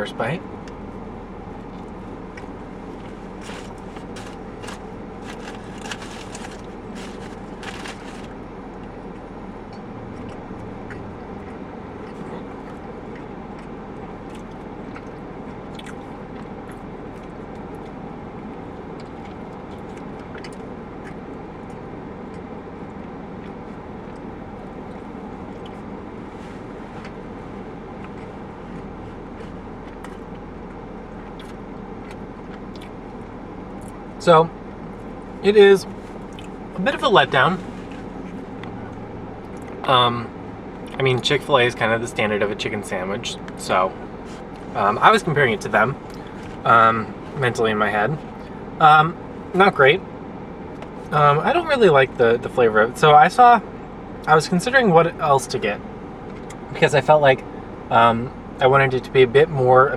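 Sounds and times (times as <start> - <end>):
steady hum: 0.0 - 59.9
person chewing crunchy food: 1.6 - 9.3, 18.9 - 34.0, 46.0 - 47.4.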